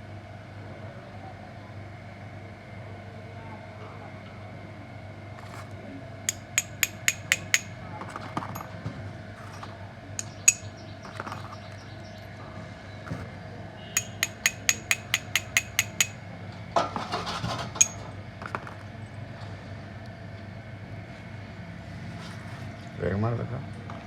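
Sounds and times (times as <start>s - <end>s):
metal tool tapping on metal: 6.3s - 7.8s, 10.2s - 10.8s, 14.0s - 16.2s, 17.8s - 18.0s
metallic scraping rattle: 6.3s - 7.8s, 10.2s - 11.4s, 14.0s - 16.2s.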